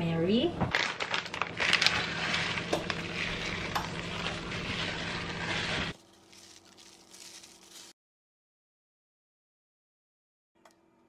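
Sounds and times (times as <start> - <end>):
baking dish sizzling: 1.4 - 8.0.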